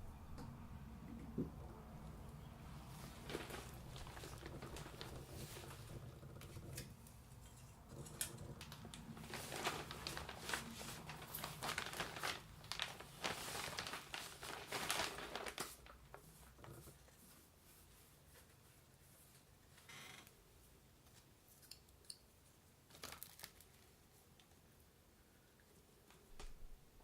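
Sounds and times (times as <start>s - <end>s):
low steady hum: 0.0s - 15.6s.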